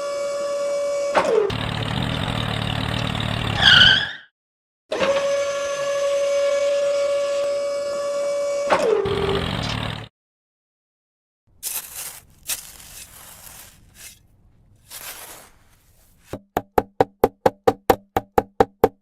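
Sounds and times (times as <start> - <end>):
fast sharp knocks: 16.3 - 19.0.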